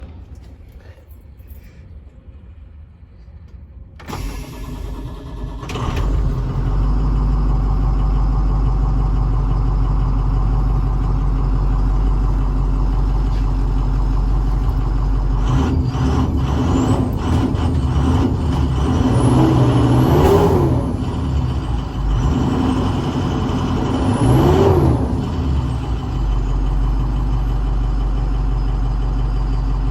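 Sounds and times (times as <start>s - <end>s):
diesel engine cranking: 4.0s - 29.9s
diesel engine idling: 4.0s - 29.9s
engine revving: 14.3s - 26.3s.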